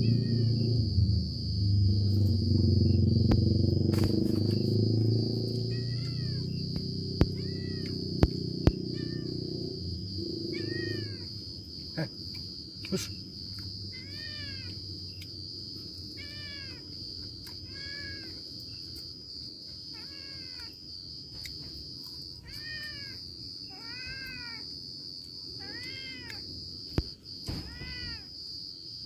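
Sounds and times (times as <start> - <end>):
cat meowing: 0.0 - 0.8, 5.5 - 6.6, 7.2 - 9.6, 10.4 - 11.4, 13.9 - 14.8, 16.1 - 17.0, 17.6 - 18.4, 19.9 - 20.8, 22.4 - 24.7, 25.6 - 26.5, 27.5 - 28.3
high-pitched insect drone: 0.0 - 29.0.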